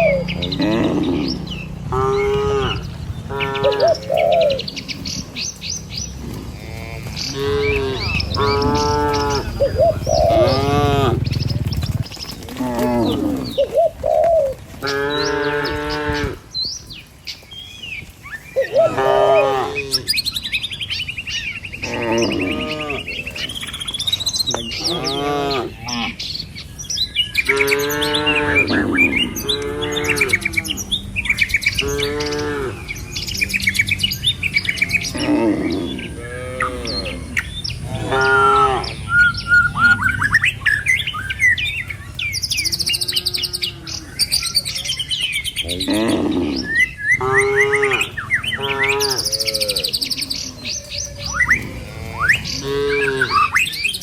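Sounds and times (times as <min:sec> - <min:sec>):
cattle mooing: 0:00.0 - 0:04.6, 0:06.1 - 0:13.8, 0:14.8 - 0:16.4, 0:18.7 - 0:20.2, 0:21.8 - 0:23.6, 0:24.5 - 0:26.2, 0:27.4 - 0:33.6, 0:34.5 - 0:40.3, 0:42.5 - 0:44.4, 0:45.6 - 0:53.7
birds chirping: 0:00.0 - 0:54.0.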